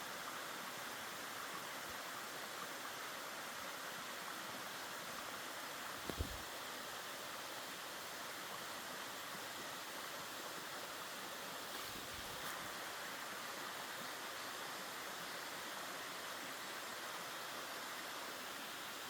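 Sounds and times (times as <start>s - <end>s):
stream rushing water: 0.0s - 19.0s.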